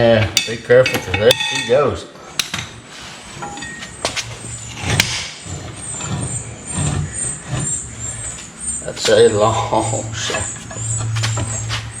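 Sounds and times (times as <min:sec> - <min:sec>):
sharp metallic knocks: 0:00.4 - 0:01.8.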